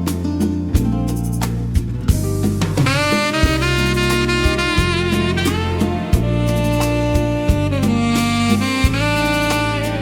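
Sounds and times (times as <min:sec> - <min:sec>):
bass: 0:00.0 - 0:10.0
jazz guitar: 0:00.0 - 0:10.0
soft drum kit: 0:00.0 - 0:10.0
saxophone: 0:02.8 - 0:10.0.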